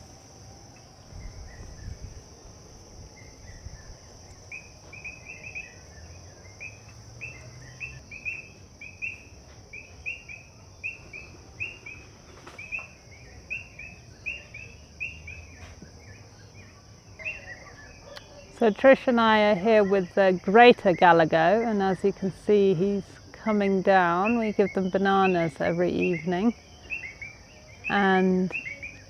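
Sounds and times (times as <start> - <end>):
high-pitched insect chorus: 0.0 - 29.0
bird chirping: 24.0 - 29.0.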